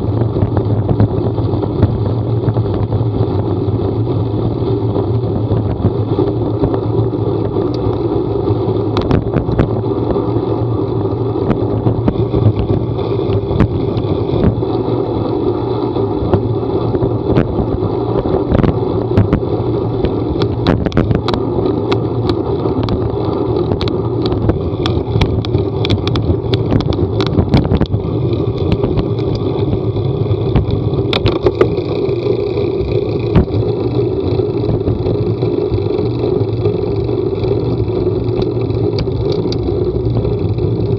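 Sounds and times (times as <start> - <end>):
vehicle engine droning: 0.0 - 40.9
sharp clicks and knocks: 8.9 - 9.8, 11.4 - 15.4, 18.5 - 40.9.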